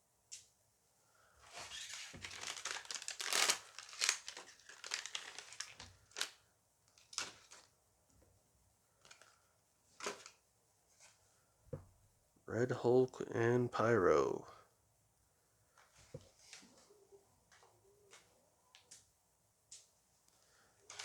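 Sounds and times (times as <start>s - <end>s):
foil pack tearing and crinkling: 1.6s - 6.4s.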